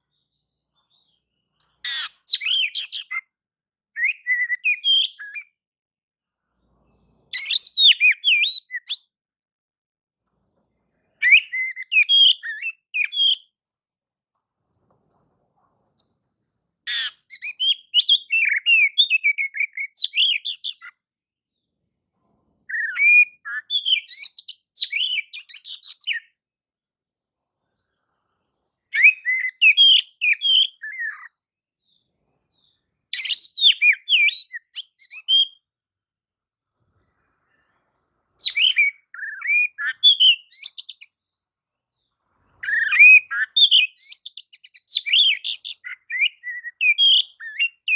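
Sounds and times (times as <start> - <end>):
bird singing chirps and whistles: 1.9 - 3.2, 4.0 - 5.6, 7.4 - 9.0, 11.2 - 13.5, 16.9 - 20.9, 22.7 - 26.4, 28.9 - 31.3, 33.2 - 35.6, 38.4 - 41.2, 42.6 - 47.9.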